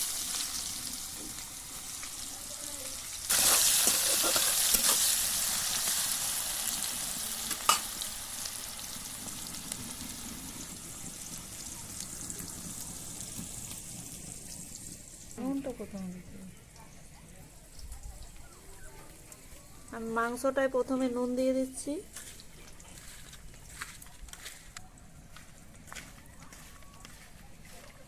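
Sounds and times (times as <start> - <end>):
onions sizzling in hot oil: 0.0 - 16.5
stirring scrapes: 3.3 - 5.0.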